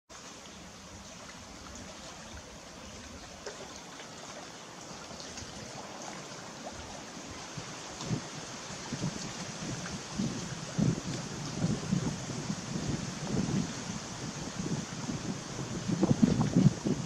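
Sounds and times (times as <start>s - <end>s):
small stream running: 0.1s - 17.0s
water drips and trickles: 0.1s - 17.0s.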